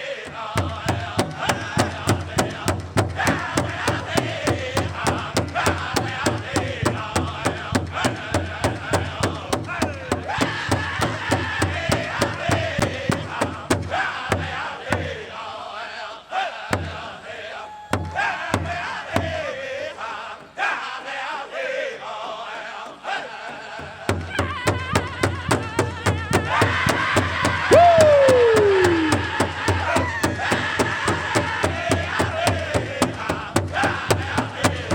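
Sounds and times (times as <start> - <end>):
group singing in high voices: 0.0 - 34.9
big drum beating: 0.6 - 14.5, 23.8 - 34.9.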